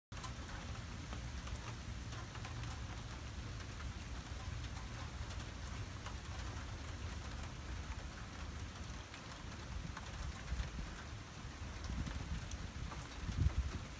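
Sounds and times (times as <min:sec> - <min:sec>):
rain falling: 0:00.1 - 0:13.9.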